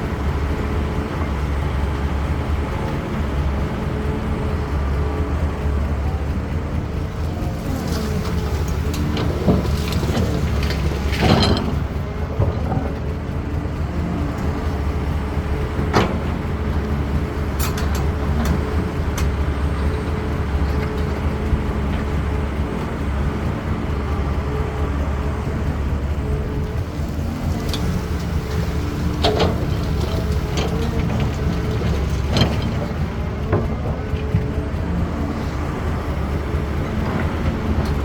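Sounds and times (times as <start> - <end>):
excavator diesel engine running: 0.0 - 38.0
sharp knocks and clanks: 8.4 - 13.1, 26.7 - 34.6.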